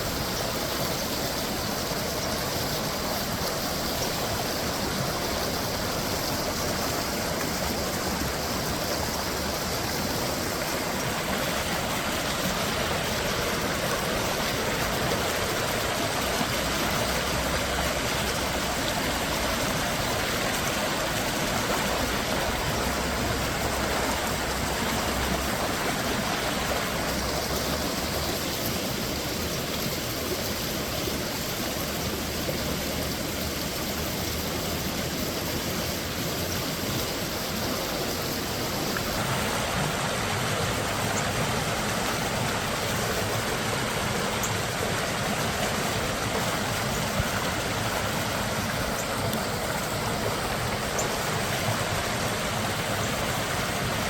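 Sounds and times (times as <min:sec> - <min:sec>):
creek water rushing over rocks: 0:00.0 - 0:54.0.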